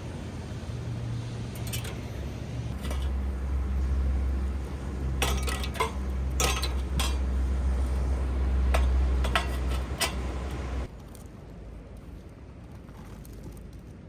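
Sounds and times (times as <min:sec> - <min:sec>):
cutlery clinking against dishes: 0:01.6 - 0:02.1, 0:05.2 - 0:07.3, 0:08.7 - 0:10.6.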